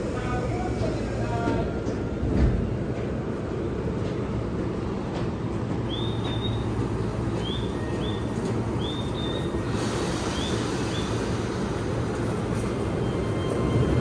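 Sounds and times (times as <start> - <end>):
electric train rumble: 0.0 - 14.0
bird chirps: 7.4 - 9.5.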